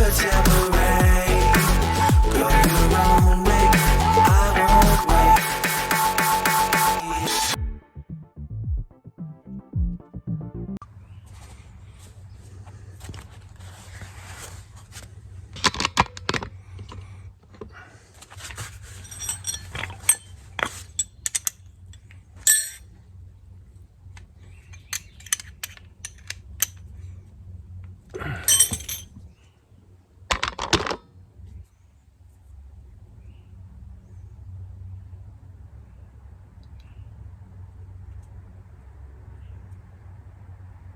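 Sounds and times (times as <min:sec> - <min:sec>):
steady low hum: 0:00.0 - 0:05.4
metal parts and tools clinking: 0:18.8 - 0:22.9, 0:24.6 - 0:26.9, 0:28.4 - 0:29.2.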